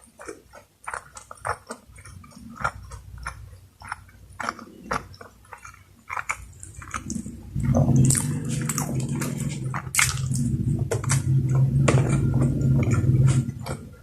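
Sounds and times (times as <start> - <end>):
chewing and mouth clicks: 0.0 - 14.0
low steady drone: 7.0 - 14.0.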